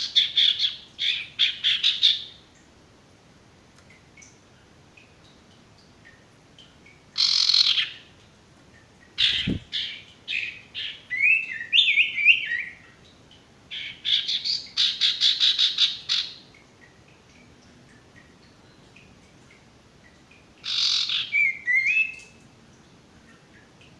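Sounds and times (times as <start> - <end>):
bird calling and chattering: 7.2 - 8.1, 9.2 - 12.9, 20.6 - 22.4.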